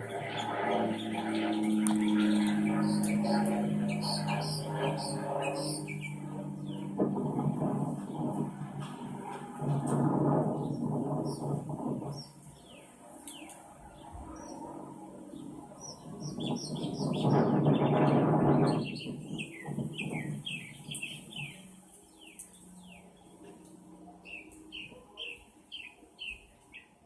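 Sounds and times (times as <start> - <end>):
small birds chirping: 0.0 - 8.4, 10.4 - 27.0
rush of noise: 0.0 - 12.8.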